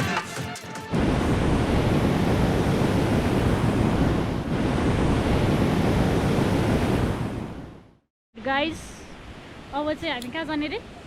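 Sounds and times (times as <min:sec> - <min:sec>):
wind buffeting microphone: 0:01.0 - 0:08.0.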